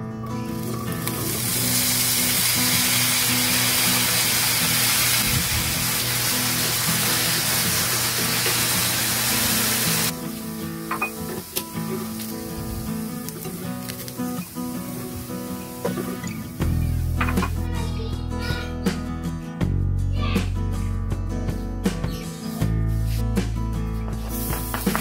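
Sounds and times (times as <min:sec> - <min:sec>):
background music: 0:00.0 - 0:25.0
potatoes sizzling in hot oil: 0:00.5 - 0:17.2, 0:24.3 - 0:25.0.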